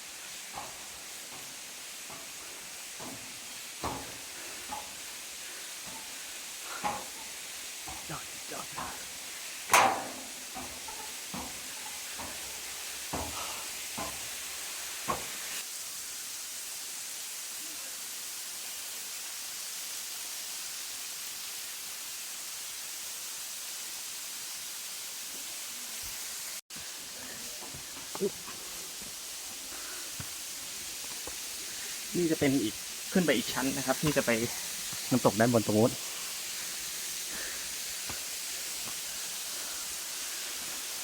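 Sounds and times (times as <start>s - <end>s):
waterfall rushing: 0.0s - 12.4s, 26.8s - 40.9s.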